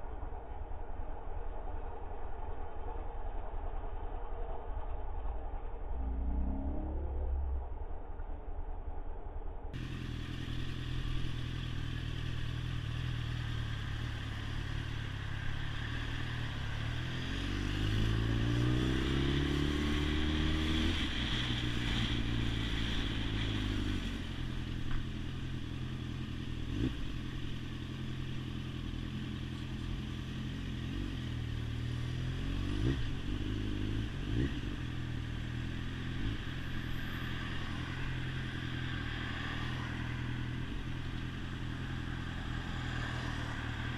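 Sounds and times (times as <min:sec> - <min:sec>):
motorcycle engine revving: 0:09.8 - 0:43.9.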